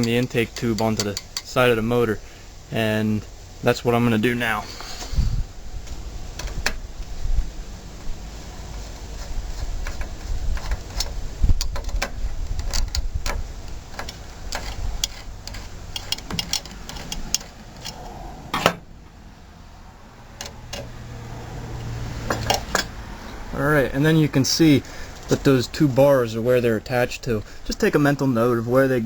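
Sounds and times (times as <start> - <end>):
hand tool metallic clicks: 0.0 - 1.6.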